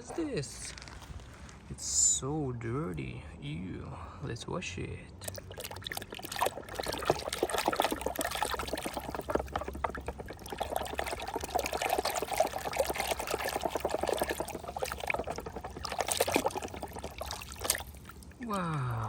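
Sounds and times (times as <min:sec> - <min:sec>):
water pouring over plastic toy: 0:05.2 - 0:19.0.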